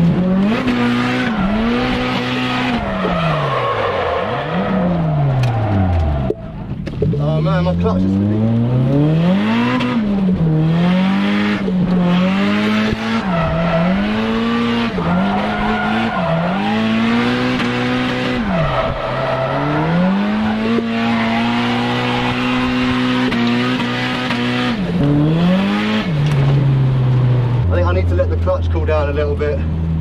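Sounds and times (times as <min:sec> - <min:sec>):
car engine revving: 0:00.0 - 0:30.0
tyres squealing: 0:15.0 - 0:17.2, 0:18.0 - 0:23.5.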